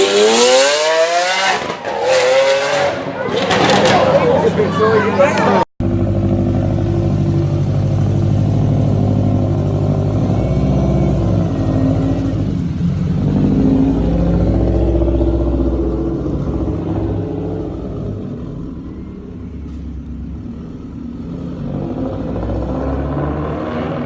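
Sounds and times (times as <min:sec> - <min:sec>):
car engine and exhaust running: 0:05.8 - 0:23.1.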